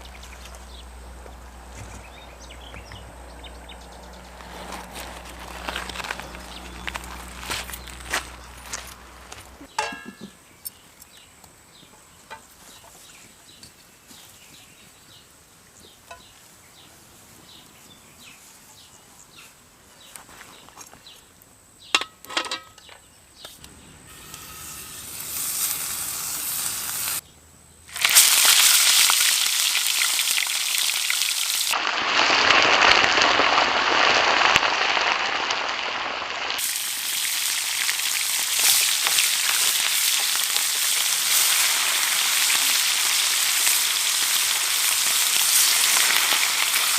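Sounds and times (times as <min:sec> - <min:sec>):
faint crackles: 0:04.0 - 0:09.7, 0:27.9 - 0:46.9
food sizzling in a pan: 0:24.1 - 0:27.2, 0:27.9 - 0:46.9.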